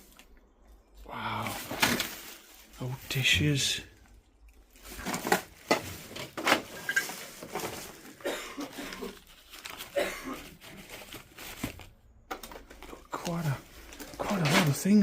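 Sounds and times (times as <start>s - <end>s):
debris crunching and knocking: 4.6s - 8.3s.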